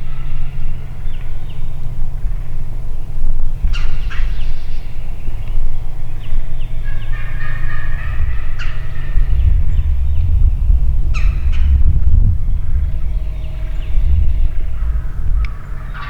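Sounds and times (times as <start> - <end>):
songbirds chirping: 0.0 - 16.0
steady low rumble: 0.0 - 16.0
wild turkey gobbling: 6.8 - 16.0.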